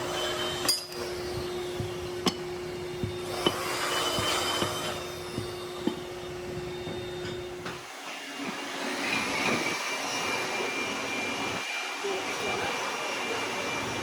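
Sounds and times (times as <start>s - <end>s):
factory machinery humming: 0.0s - 8.5s
high steady machine whine: 0.0s - 14.0s.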